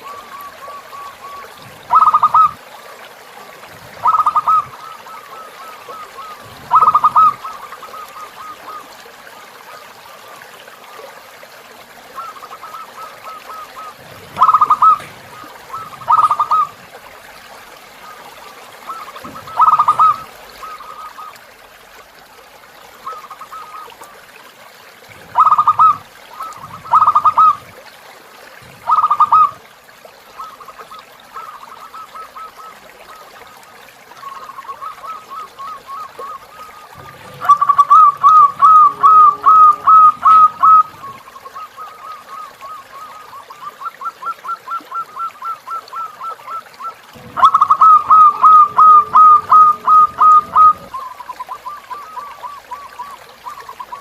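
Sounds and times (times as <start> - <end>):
dove cooing: 0.0 - 2.6, 3.8 - 9.0, 12.2 - 16.9, 18.8 - 21.4, 25.2 - 27.7, 28.6 - 29.6, 34.2 - 54.0
faint trickling river water: 0.0 - 54.0
fast trilled notes: 37.4 - 40.9.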